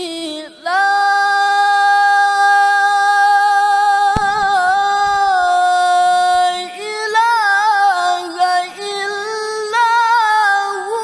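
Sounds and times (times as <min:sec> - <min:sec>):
sharp click: 0:04.2 - 0:05.4.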